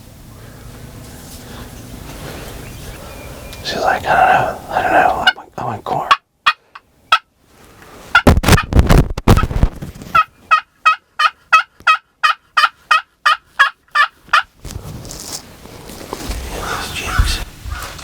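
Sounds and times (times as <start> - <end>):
turkey rough call: 3.8 - 7.2
turkey yelping: 10.2 - 14.5.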